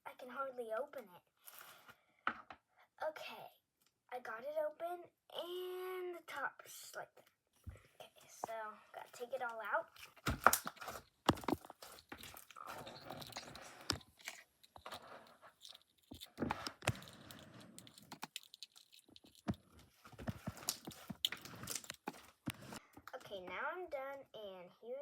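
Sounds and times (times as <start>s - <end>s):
slime squishing and popping: 10.2s - 22.3s.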